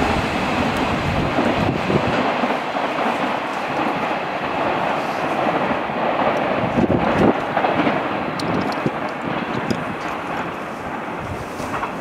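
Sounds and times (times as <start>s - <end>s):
train wheels rumbling on track: 0.0s - 12.0s
wheels clacking over rail joints: 11.6s - 12.0s.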